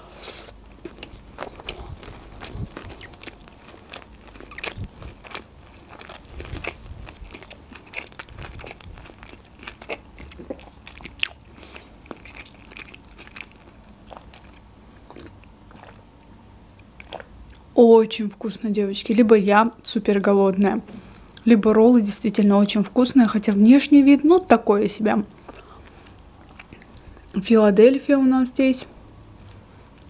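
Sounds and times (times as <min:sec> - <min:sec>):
person chewing crunchy food: 0:00.2 - 0:17.6, 0:25.4 - 0:27.4.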